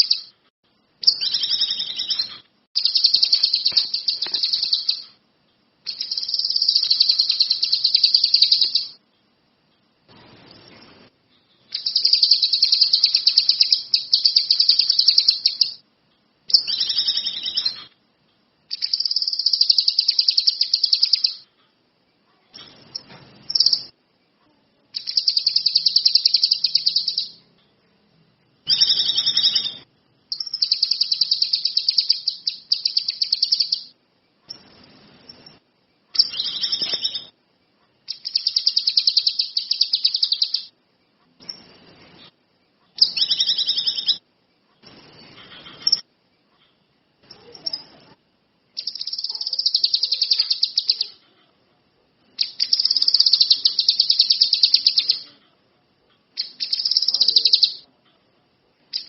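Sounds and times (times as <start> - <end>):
songbird trilling: 1.0 - 5.2, 5.9 - 9.0, 11.7 - 15.8, 16.5 - 17.9, 18.7 - 21.4, 25.0 - 27.4, 28.7 - 33.9, 36.2 - 37.3, 38.1 - 40.7, 43.0 - 44.2, 48.8 - 51.2, 52.4 - 55.3, 56.4 - 57.9.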